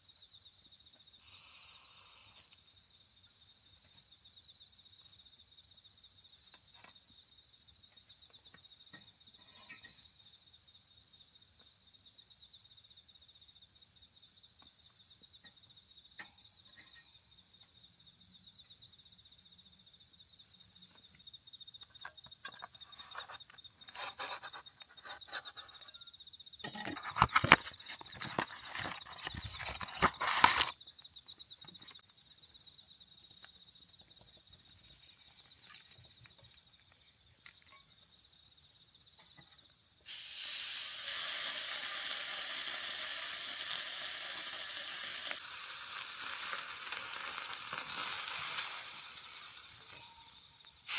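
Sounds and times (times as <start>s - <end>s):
insects trilling: 0.0s - 50.9s
close rustling and clattering: 22.0s - 30.8s.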